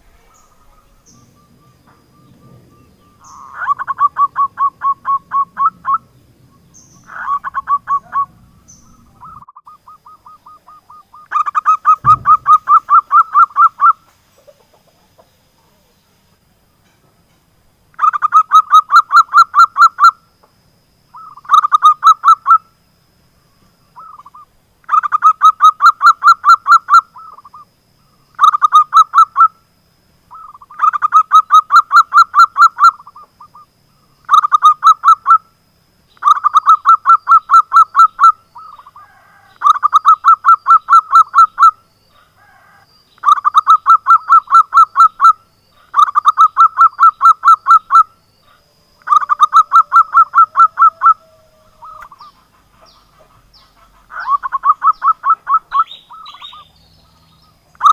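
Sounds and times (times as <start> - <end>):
dove cooing: 0.0 - 6.2, 7.0 - 15.9, 36.2 - 56.8.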